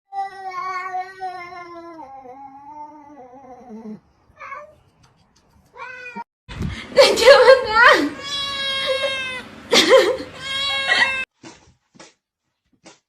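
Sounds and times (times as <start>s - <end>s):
cat meowing: 4.4s - 4.8s, 5.8s - 6.2s, 8.2s - 9.4s, 10.4s - 11.2s
cat yowling: 8.2s - 9.4s, 10.4s - 11.3s.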